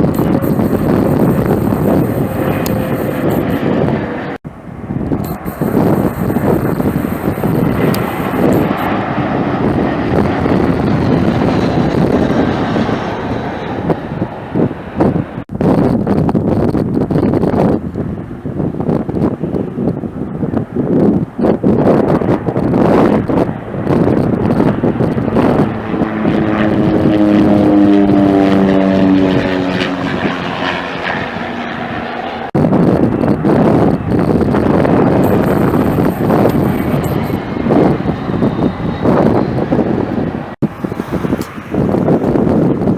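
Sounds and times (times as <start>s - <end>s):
aircraft engines droning: 0.0s - 15.6s, 16.8s - 42.9s
strong wind buffeting microphone: 0.0s - 42.9s.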